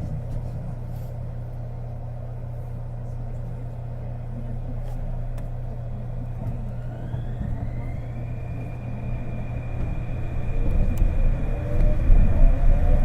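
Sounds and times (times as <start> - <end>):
low train rumble: 0.0 - 13.0
train motor whine: 6.2 - 13.0.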